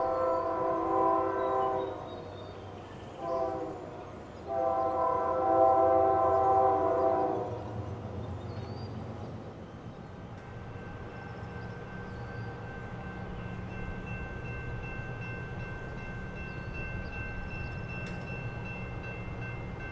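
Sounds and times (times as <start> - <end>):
locomotive air horn blasts: 0.0 - 2.1, 3.2 - 3.9, 4.5 - 7.6
approaching train rumble: 0.0 - 19.9.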